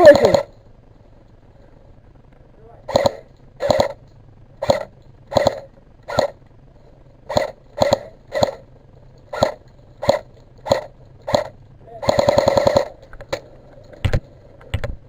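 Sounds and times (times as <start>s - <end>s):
airsoft gun full-auto burst: 0.0s - 0.6s, 2.9s - 4.0s, 4.6s - 6.4s, 7.2s - 8.7s, 9.3s - 13.1s
airsoft gun single shots: 2.9s - 4.0s, 4.6s - 6.4s, 7.3s - 8.6s, 9.3s - 12.9s.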